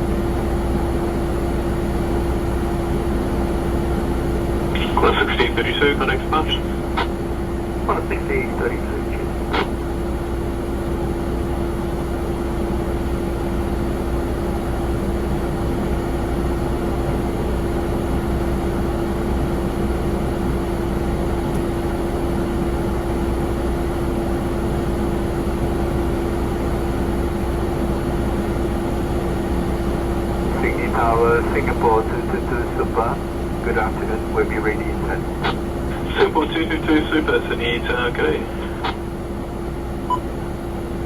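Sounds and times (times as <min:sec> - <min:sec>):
jet aircraft droning: 0:00.0 - 0:41.0.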